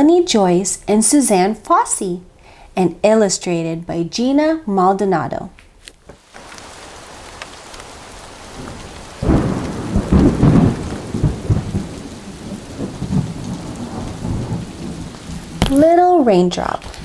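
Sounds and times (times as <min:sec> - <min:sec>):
steady rain: 0:06.0 - 0:17.0
rolling thunder: 0:06.2 - 0:15.8.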